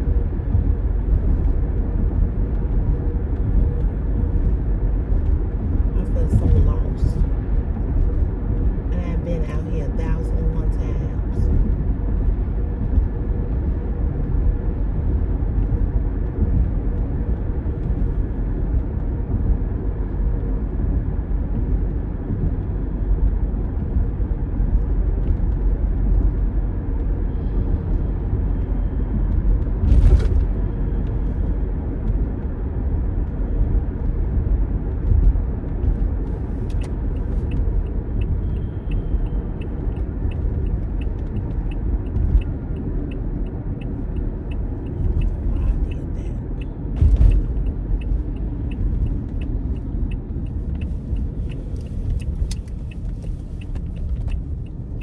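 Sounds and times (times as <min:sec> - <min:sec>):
car cabin road rumble: 0:00.0 - 0:55.0
thump: 0:29.9 - 0:30.5, 0:47.0 - 0:47.6
turn signal clicking: 0:36.5 - 0:55.0.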